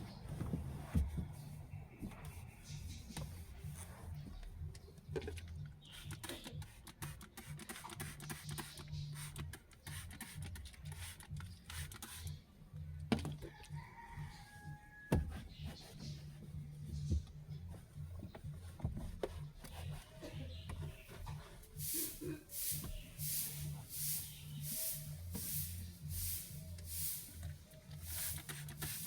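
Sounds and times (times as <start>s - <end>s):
rustling and knocks of handling: 0.1s - 6.9s, 15.1s - 29.0s.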